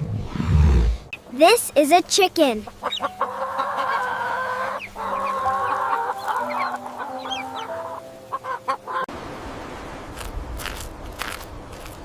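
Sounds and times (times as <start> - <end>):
chickens clucking: 2.5 - 9.1.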